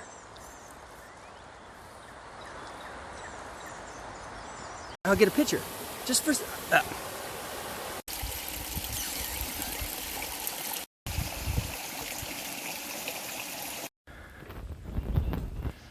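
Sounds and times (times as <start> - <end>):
running water: 5.1 - 13.9.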